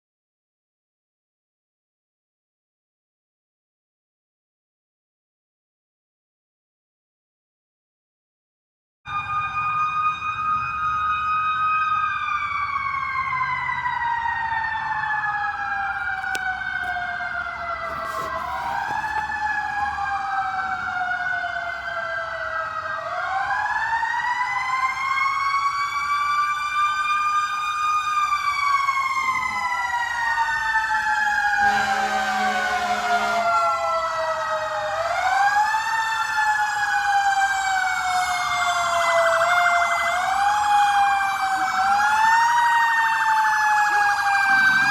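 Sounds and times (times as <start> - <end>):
fire truck sirens wailing: 9.1 - 44.9
low horn blast: 31.6 - 33.8, 43.9 - 44.9.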